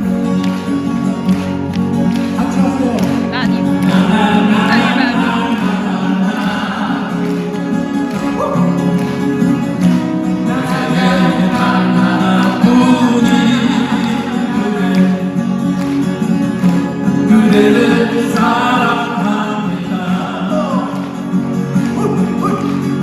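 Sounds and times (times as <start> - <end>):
acoustic guitars: 0.0 - 23.0
male vocal quartet singing: 2.4 - 9.0, 10.2 - 15.8, 17.0 - 23.0.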